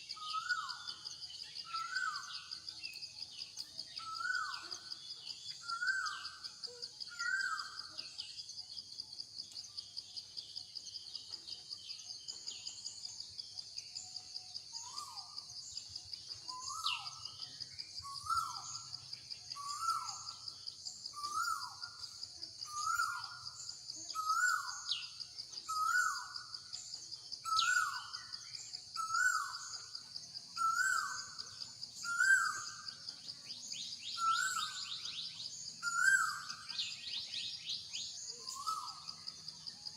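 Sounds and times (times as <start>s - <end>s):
insects droning: 0.0s - 39.9s
faint high chirps: 13.9s - 39.9s.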